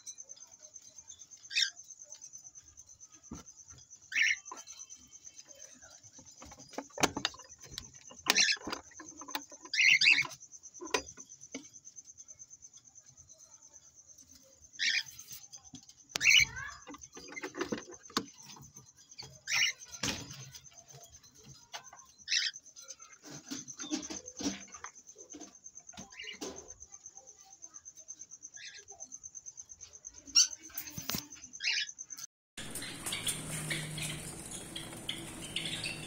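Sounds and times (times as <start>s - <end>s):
finches chirping: 0.0s - 36.0s
birds rustling in cage: 0.8s - 11.8s, 32.6s - 36.0s.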